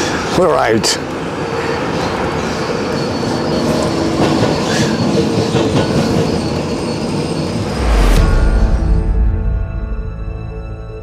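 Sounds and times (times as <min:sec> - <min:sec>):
train wagons running on rails: 0:00.0 - 0:07.8.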